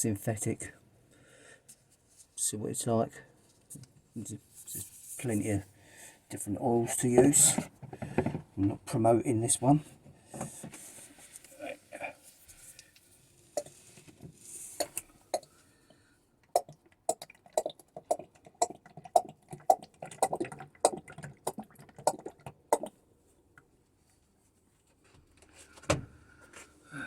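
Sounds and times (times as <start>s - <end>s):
oil glugging into a jug: 16.5s - 23.0s.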